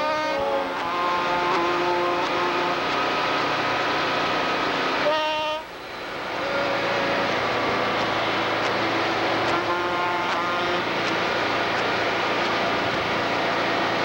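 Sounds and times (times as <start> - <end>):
truck air horns: 0.0 - 3.0, 5.0 - 5.7, 9.4 - 11.0
passing diesel trucks: 0.0 - 14.0.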